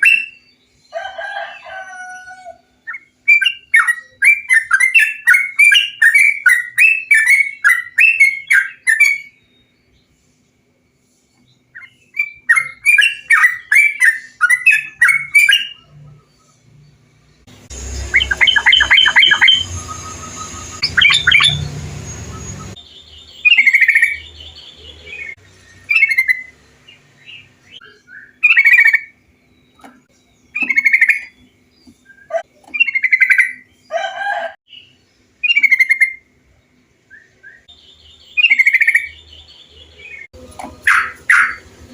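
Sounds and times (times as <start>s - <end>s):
bird song chattering: 0.0s - 34.0s, 34.7s - 41.9s
bird call phrases: 11.6s - 16.6s, 17.7s - 36.3s, 37.1s - 41.9s.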